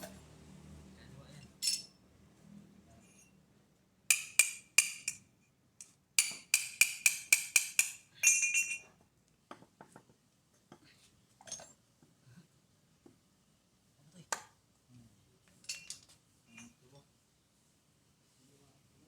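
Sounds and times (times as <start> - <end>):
tool striking steel: 4.1 - 5.3, 6.2 - 8.8.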